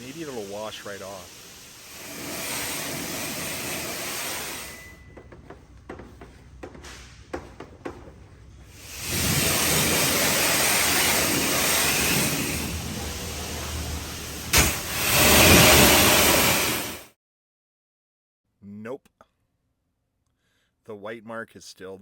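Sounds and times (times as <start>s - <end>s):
water spraying on car: 0.0s - 4.8s, 8.7s - 17.0s.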